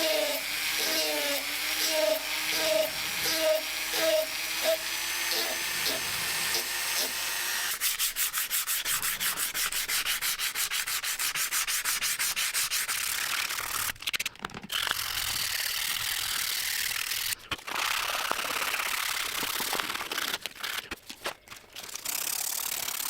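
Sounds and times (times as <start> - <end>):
sandpaper rubbing back and forth: 0.0 - 14.0.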